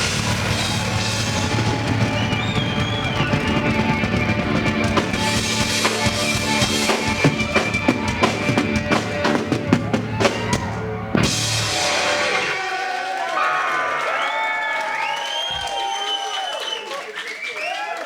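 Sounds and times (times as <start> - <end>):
live rock band playing: 0.0 - 12.7
drum kit beating: 0.0 - 13.0.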